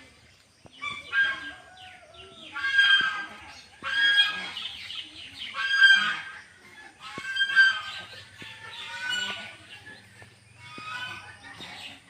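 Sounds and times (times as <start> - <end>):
chicks begging calls: 0.4 - 12.0.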